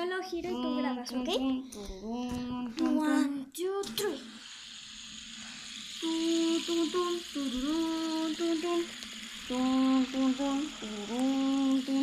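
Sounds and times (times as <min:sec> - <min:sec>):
girl humming a tune: 0:00.5 - 0:03.5, 0:06.0 - 0:08.9, 0:09.5 - 0:12.0.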